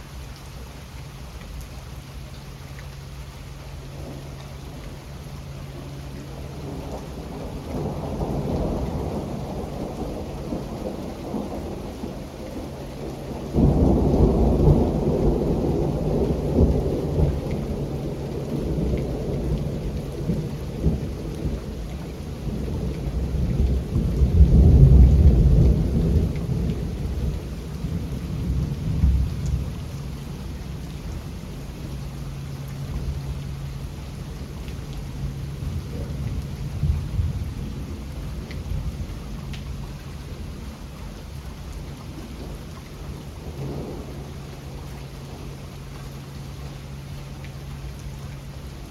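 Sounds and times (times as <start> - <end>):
steady rain: 0.0 - 48.9
rolling thunder: 5.6 - 45.7.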